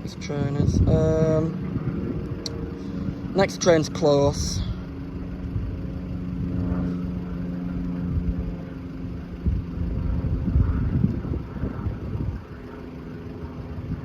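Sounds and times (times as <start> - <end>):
wind gusts on microphone: 0.0 - 3.4, 9.4 - 12.6
engine humming: 0.0 - 14.0.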